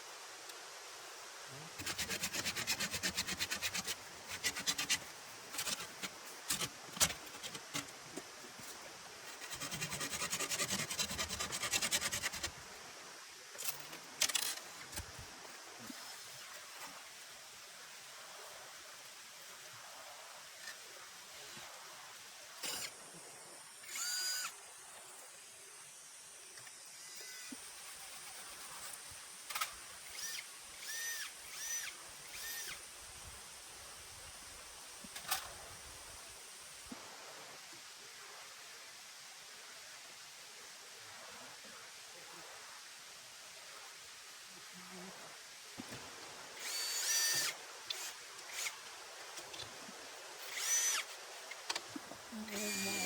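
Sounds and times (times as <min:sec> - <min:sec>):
steady background hiss: 0:00.0 - 0:53.0
electric power tool whirring: 0:30.1 - 0:32.8, 0:46.6 - 0:48.8, 0:50.4 - 0:51.1, 0:52.5 - 0:53.0.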